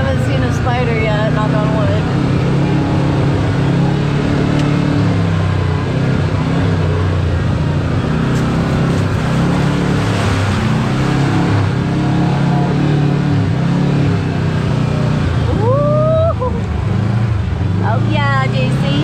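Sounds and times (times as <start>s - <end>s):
vehicle engine running: 0.0s - 19.0s
tyres on rocky trail: 8.0s - 10.8s.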